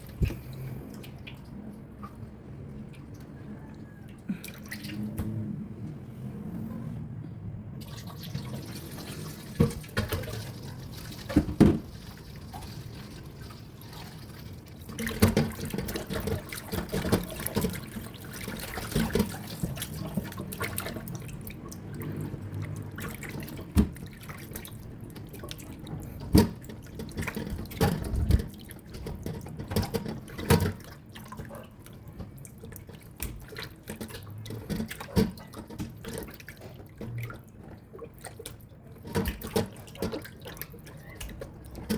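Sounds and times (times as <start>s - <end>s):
tap water running into sink: 7.8s - 31.1s
knocks and clatter in water: 8.1s - 41.9s.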